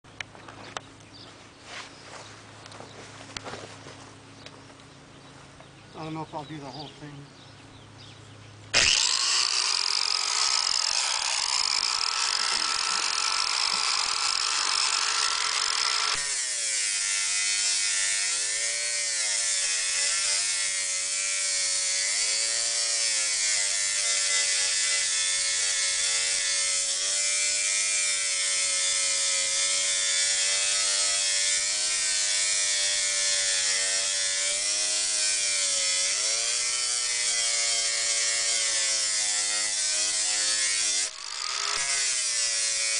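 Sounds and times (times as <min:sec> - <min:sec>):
angle grinder whining: 0:08.7 - 0:42.9.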